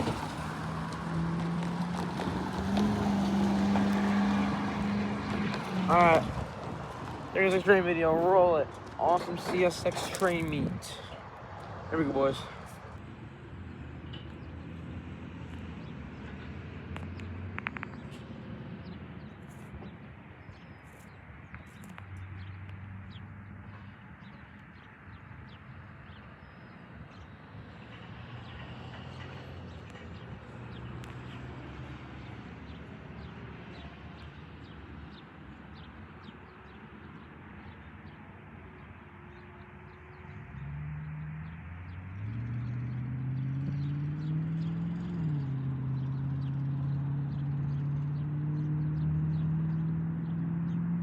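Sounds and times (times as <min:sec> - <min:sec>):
faint clicks and chirps: 0:19.5 - 0:22.8.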